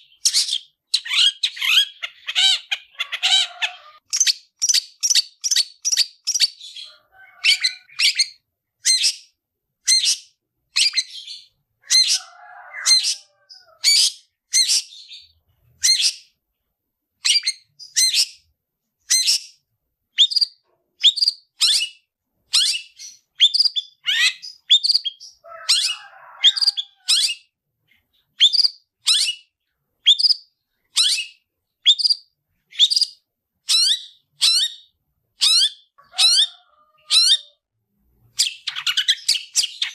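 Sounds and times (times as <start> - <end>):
bird calling high: 0.0 - 9.2, 10.8 - 16.3, 20.2 - 27.5, 33.7 - 37.6.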